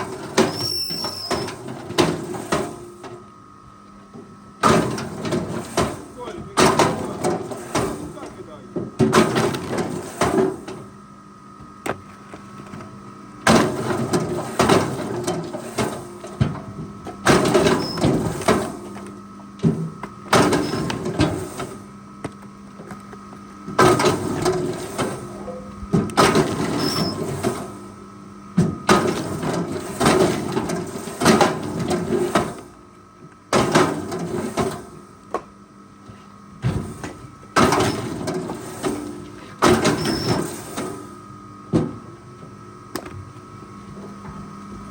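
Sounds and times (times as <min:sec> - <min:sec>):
machine clattering and scraping: 0:04.6 - 0:10.8, 0:13.4 - 0:21.9, 0:23.7 - 0:27.8, 0:28.8 - 0:32.8, 0:33.6 - 0:35.0, 0:36.6 - 0:41.1.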